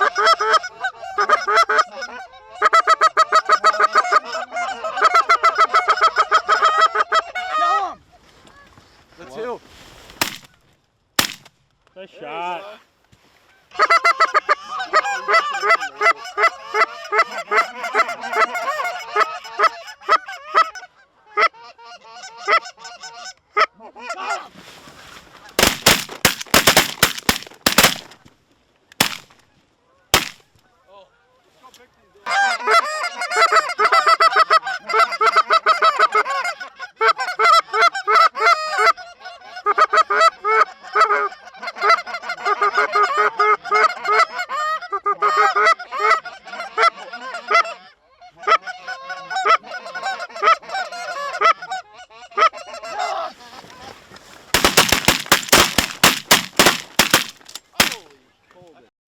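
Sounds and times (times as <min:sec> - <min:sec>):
shotgun blasts: 0:10.2 - 0:10.5, 0:11.2 - 0:11.5, 0:25.6 - 0:28.2, 0:29.0 - 0:29.3, 0:30.2 - 0:30.4, 0:54.6 - 0:58.0.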